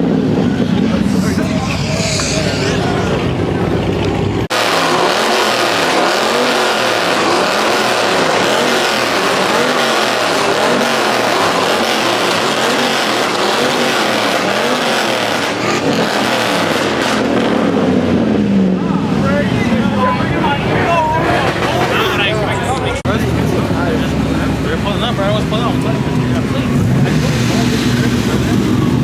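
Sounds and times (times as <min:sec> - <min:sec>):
car engine revving: 0:00.0 - 0:29.0
tires squealing: 0:00.0 - 0:29.0.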